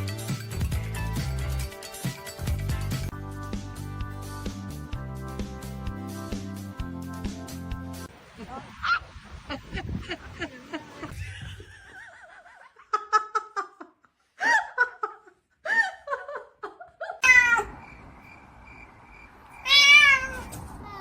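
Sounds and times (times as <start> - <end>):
cat meowing: 17.2 - 17.7, 19.6 - 20.6.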